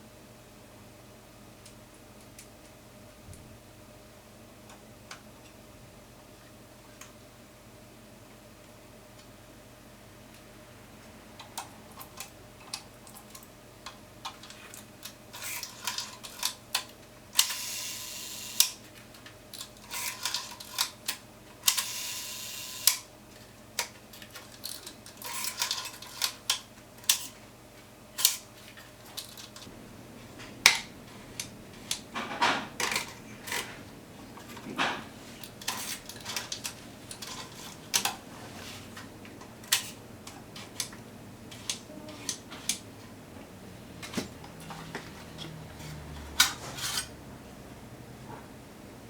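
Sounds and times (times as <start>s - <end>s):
small metal parts clicking: 14.3s - 16.8s, 24.2s - 27.4s
metal scraping: 44.0s - 47.2s.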